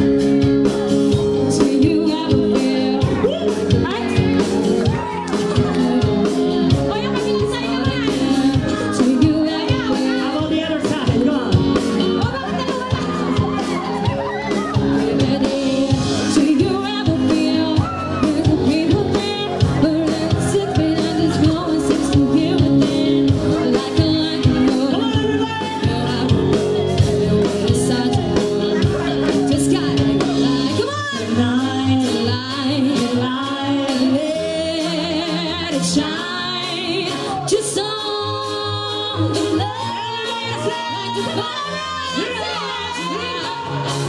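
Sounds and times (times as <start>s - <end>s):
live band playing pop-rock: 0.0s - 44.0s
woman singing: 1.1s - 44.0s.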